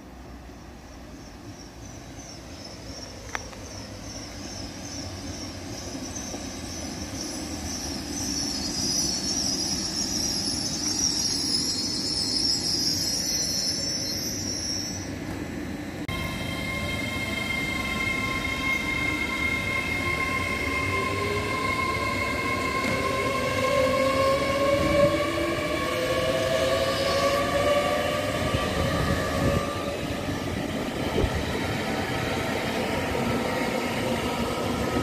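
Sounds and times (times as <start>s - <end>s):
train whine of several pitches: 0.0s - 35.0s
high wavering wheel squeal: 0.9s - 15.2s, 16.1s - 35.0s
train rumble: 14.0s - 35.0s.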